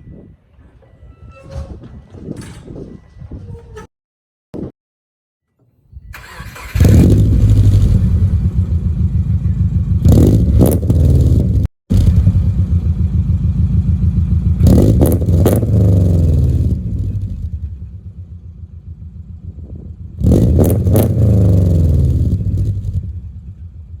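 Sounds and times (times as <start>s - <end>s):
car engine revving: 6.1s - 17.7s, 18.9s - 23.2s.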